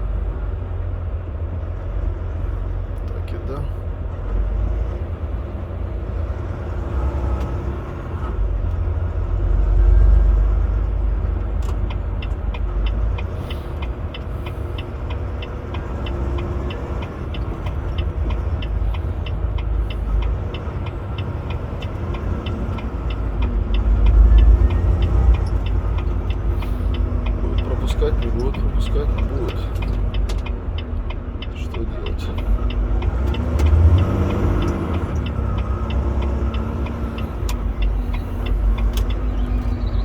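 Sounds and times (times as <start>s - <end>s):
truck engine and road rumble: 0.0s - 40.0s
turn signal clicking: 10.6s - 40.0s.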